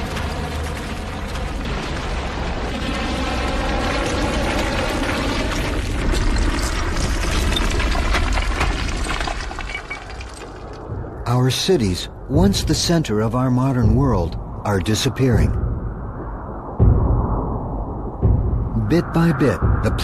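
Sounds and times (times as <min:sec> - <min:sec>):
concrete floors collapsing: 0:00.0 - 0:10.9.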